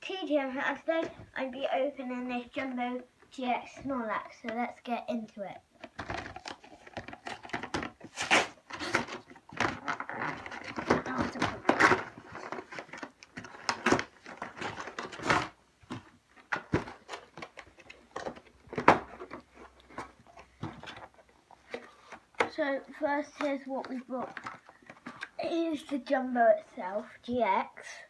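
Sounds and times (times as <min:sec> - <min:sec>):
packaging rustling and scraping: 0:05.8 - 0:25.9.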